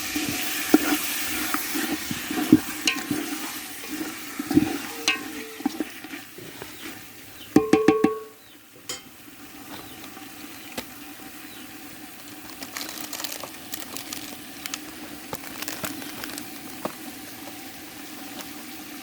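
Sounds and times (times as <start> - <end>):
pot sizzling and crackling: 0.0 - 19.0
metal utensil clanging on pot: 2.5 - 3.4, 4.5 - 5.9, 7.6 - 9.1.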